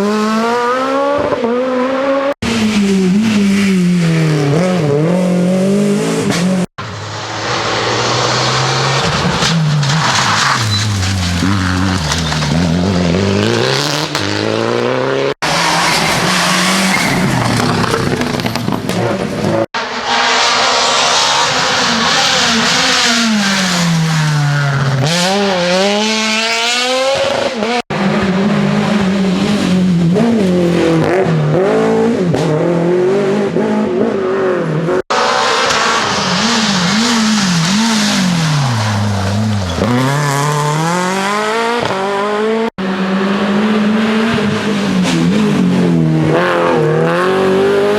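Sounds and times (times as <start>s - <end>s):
rally car engines revving: 0.0s - 47.9s
tyre squeal and skidding: 6.8s - 13.2s, 15.4s - 25.2s, 35.1s - 41.0s.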